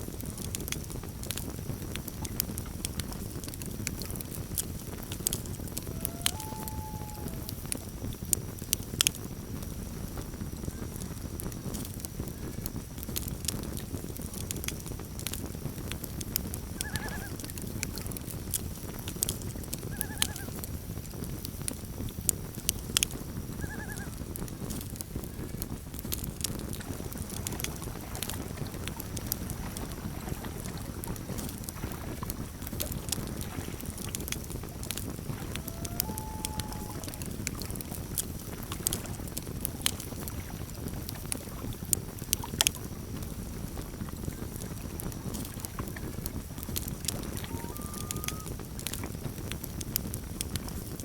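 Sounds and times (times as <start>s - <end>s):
campfire crackling and popping: 0.0s - 51.0s
short arched animal calls: 5.8s - 7.6s, 16.8s - 17.4s, 35.4s - 37.3s, 47.3s - 48.5s.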